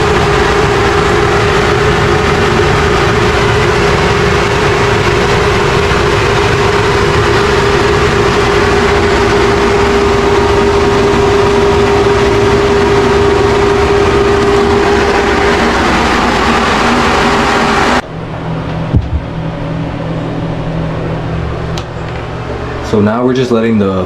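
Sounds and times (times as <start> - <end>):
motor droning: 0.0 - 23.1.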